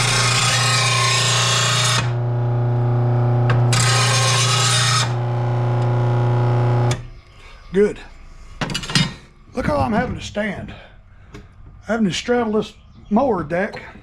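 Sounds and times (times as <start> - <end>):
blade grinding on disc: 0.0 - 7.0
sharpener motor humming: 0.0 - 7.0.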